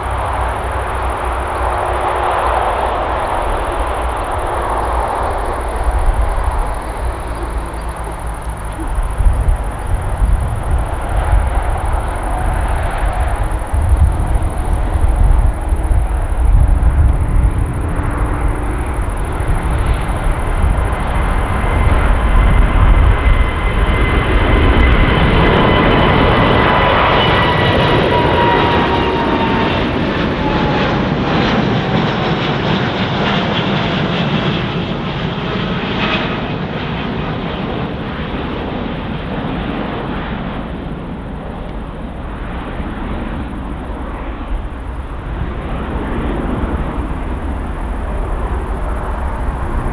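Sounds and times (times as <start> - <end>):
jet plane passing by: 0.0 - 49.9.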